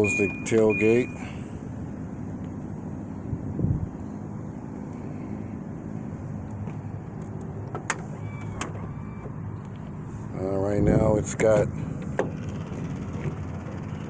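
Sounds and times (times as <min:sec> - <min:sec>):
low vehicle hum: 0:00.0 - 0:14.0
power liftgate motor closing: 0:07.8 - 0:09.4.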